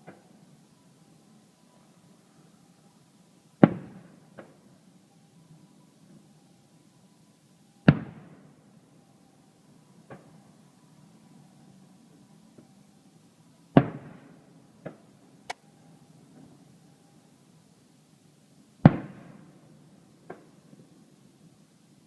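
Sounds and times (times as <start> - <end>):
fainter fireworks bang: 3.6 - 4.6, 7.8 - 8.4, 13.7 - 15.1, 18.8 - 19.5
fireworks booming: 3.6 - 4.6, 7.9 - 8.5, 13.7 - 15.1, 18.8 - 19.6.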